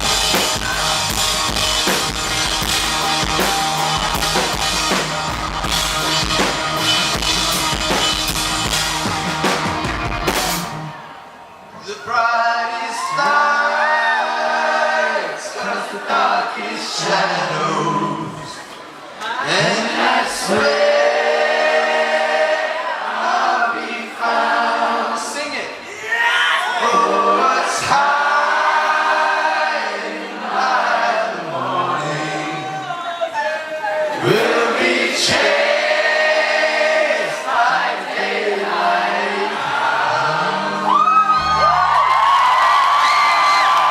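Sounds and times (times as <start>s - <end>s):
crowd singing in chorus: 0.0s - 8.4s, 11.8s - 25.6s, 26.8s - 33.0s, 33.9s - 41.2s
rock drum kit pounding: 0.0s - 10.9s
live rock band playing: 0.0s - 11.1s.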